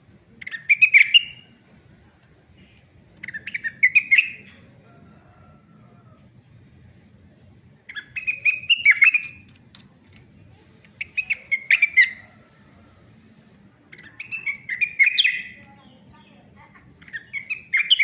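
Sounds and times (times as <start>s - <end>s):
bird twittering: 0.4s - 1.6s, 2.6s - 5.0s, 7.9s - 9.5s, 11.0s - 12.4s, 13.9s - 18.0s.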